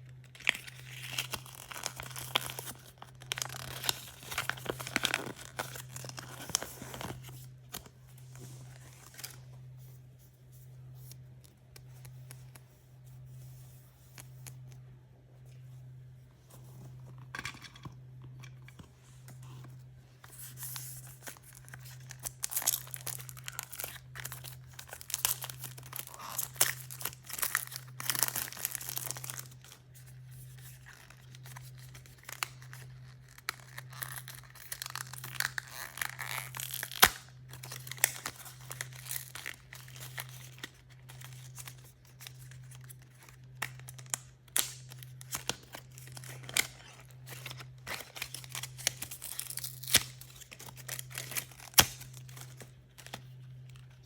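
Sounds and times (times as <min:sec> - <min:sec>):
packaging tearing and crinkling: 0:00.2 - 0:07.8, 0:20.3 - 0:54.0.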